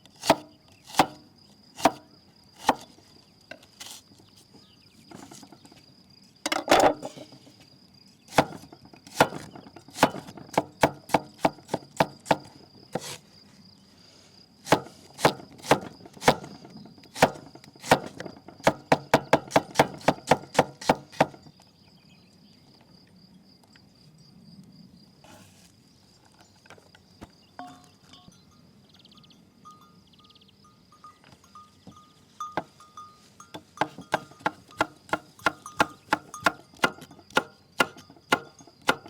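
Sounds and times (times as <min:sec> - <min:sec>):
high insect chirr: 0:00.0 - 0:39.0
chopping wood: 0:00.2 - 0:01.2, 0:01.8 - 0:02.9, 0:08.3 - 0:12.5, 0:14.7 - 0:21.5, 0:33.8 - 0:39.0.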